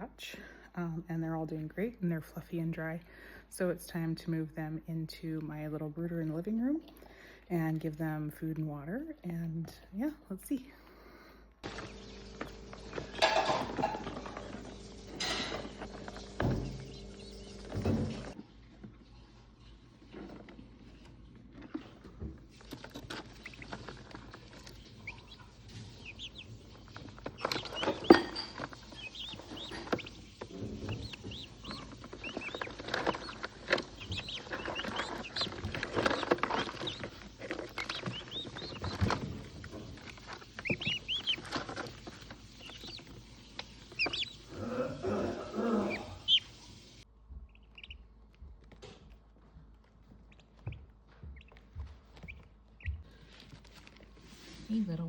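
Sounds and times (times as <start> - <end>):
turkey poults peeping: 11.6 - 18.4, 22.5 - 48.0, 52.2 - 54.0
rustling: 11.6 - 55.0.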